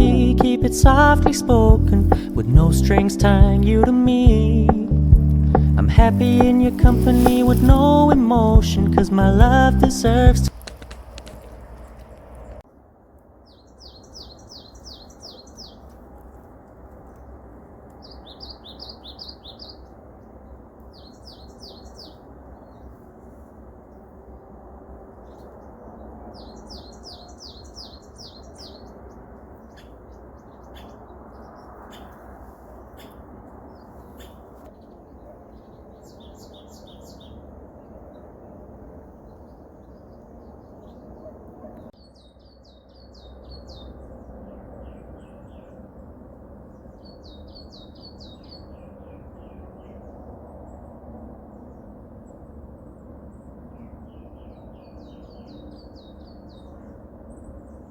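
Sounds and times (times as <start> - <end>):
steady low background rush: 0.0 - 10.6
songbirds singing high trills: 13.5 - 15.9, 18.0 - 19.9, 20.9 - 22.9, 25.2 - 38.3, 41.9 - 45.8, 46.7 - 50.2, 53.4 - 57.9.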